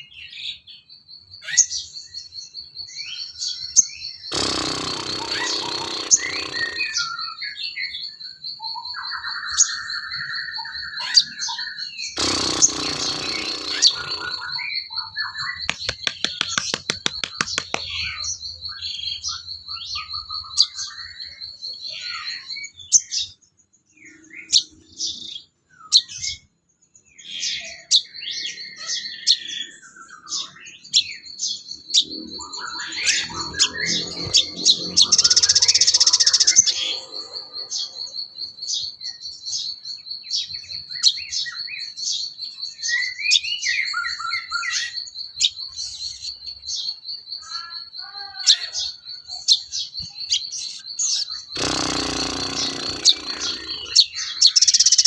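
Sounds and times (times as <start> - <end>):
high-pitched rapid bird trill: 2.8 - 23.4, 27.2 - 55.0
harsh hissing bird call: 4.3 - 7.1, 12.2 - 14.6, 51.6 - 55.0.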